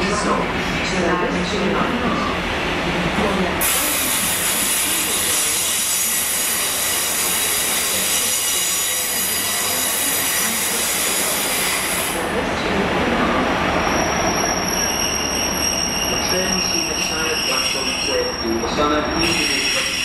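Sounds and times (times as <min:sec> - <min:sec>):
train running slowly: 0:00.0 - 0:20.0
train brakes squealing: 0:03.6 - 0:12.2, 0:13.8 - 0:20.0.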